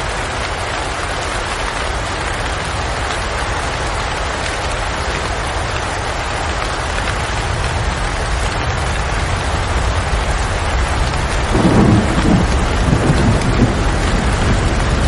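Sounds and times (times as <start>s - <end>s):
heavy rain: 0.0s - 15.0s
thunder rumbling: 8.2s - 15.0s.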